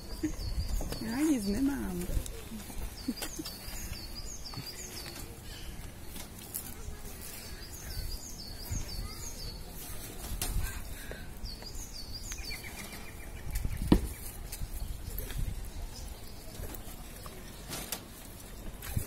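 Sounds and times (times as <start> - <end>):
small bird chirping: 6.0 - 10.0, 11.4 - 17.4.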